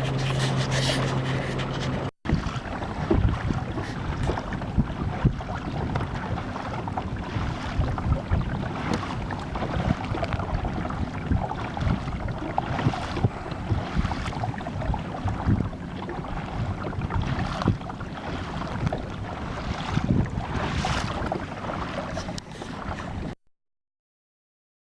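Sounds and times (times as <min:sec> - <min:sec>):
wind buffeting microphone: 0:00.0 - 0:23.3
water splashing along kayak: 0:00.0 - 0:23.4.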